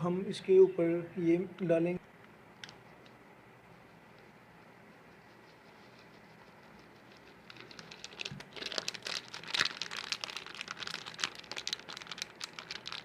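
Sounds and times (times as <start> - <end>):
crinkling and rustling: 4.2 - 13.0.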